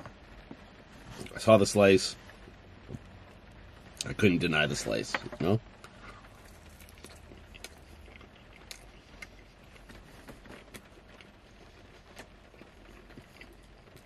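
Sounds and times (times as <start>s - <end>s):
faint low hum: 0.0s - 14.0s
wet chewing mouth clicks: 6.5s - 10.0s.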